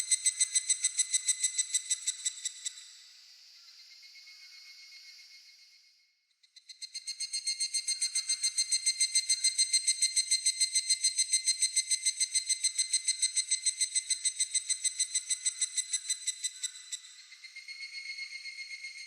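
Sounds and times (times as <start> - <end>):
cicada calling in high pulses: 0.0 - 2.8, 6.6 - 19.0.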